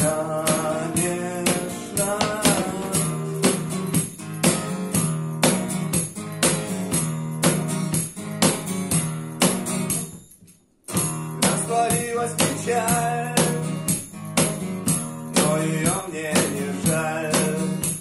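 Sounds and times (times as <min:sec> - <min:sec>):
person singing: 0:00.0 - 0:03.8, 0:11.4 - 0:13.8, 0:15.4 - 0:18.0
cajon beat: 0:00.0 - 0:10.1, 0:10.9 - 0:18.0
acoustic guitar chords: 0:00.0 - 0:18.0.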